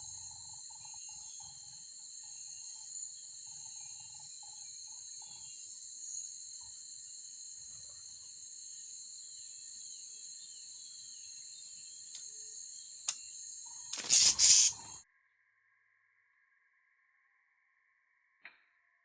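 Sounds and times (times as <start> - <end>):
insects droning: 0.0 - 15.0
sharp click: 13.9 - 14.9.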